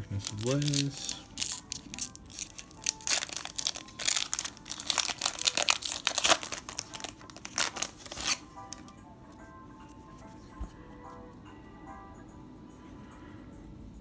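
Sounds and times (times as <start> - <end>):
foil wrapper crinkling and tearing: 0.0 - 8.9
soft background music: 0.0 - 14.0.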